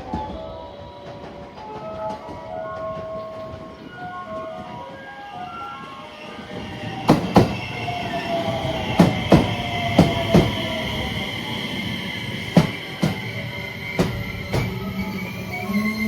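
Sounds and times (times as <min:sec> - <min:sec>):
faint train whine: 0:00.0 - 0:16.0
wheels knocking over rail joints: 0:06.6 - 0:07.8.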